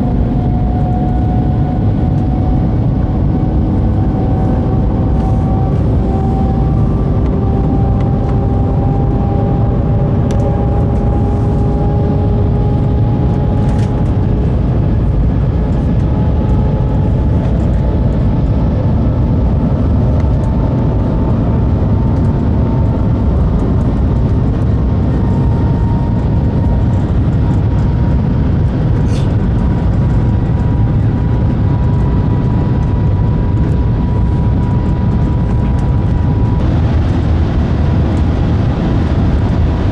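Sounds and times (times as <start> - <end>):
faint rising whine: 0.0 - 27.8
maglev train rumbling: 0.0 - 39.9.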